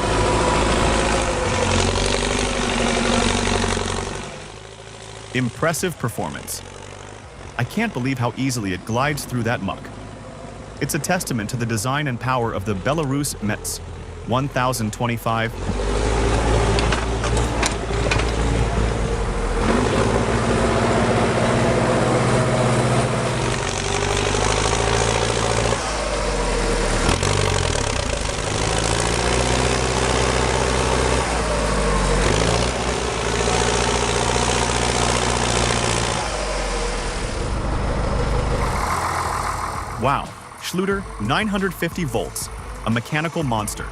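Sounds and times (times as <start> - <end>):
tractor diesel engine under load: 0.0 - 43.9.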